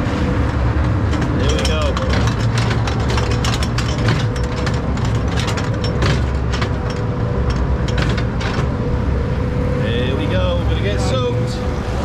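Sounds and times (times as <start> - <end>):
machinery clattering: 0.0 - 9.3
ride machinery rumbling: 0.0 - 12.0.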